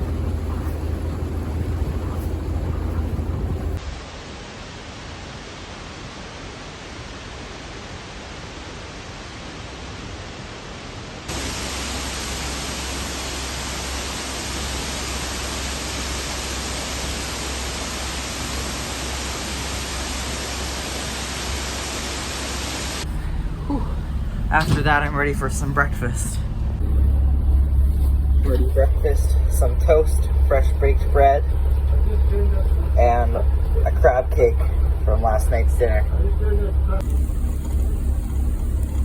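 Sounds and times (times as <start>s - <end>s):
waterfall rushing water: 0.0s - 23.5s.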